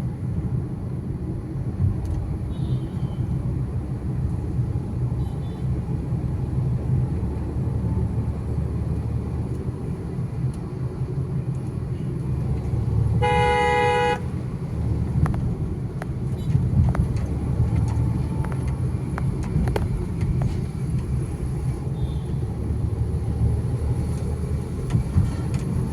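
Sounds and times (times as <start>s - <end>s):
road traffic rumble: 0.0s - 25.9s
vehicle horn: 13.2s - 14.4s.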